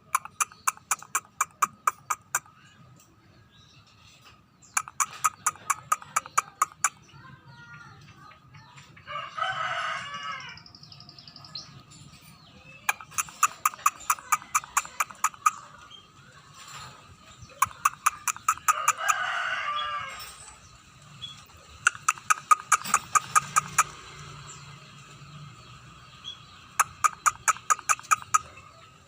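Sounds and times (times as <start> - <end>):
bird whistling and clicking: 0.0 - 2.5, 4.7 - 7.0, 12.8 - 15.6, 17.6 - 19.0, 21.3 - 24.0, 26.7 - 28.5
rooster crowing: 9.1 - 10.6, 18.7 - 20.4.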